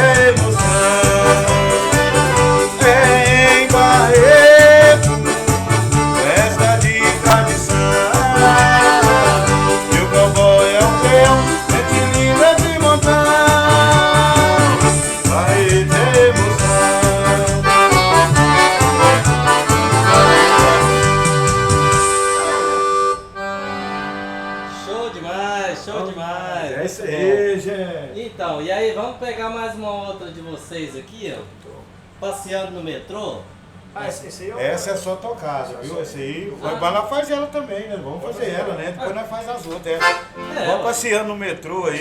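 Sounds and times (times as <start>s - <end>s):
bass drum beat: 0.0s - 22.3s
accordion melody: 0.0s - 25.9s, 39.9s - 41.1s.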